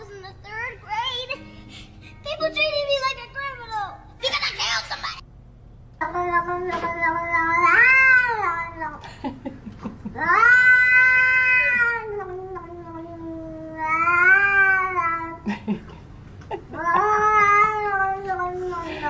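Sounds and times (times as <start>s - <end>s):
cat meowing: 6.0s - 9.0s, 10.2s - 15.4s, 16.8s - 19.0s.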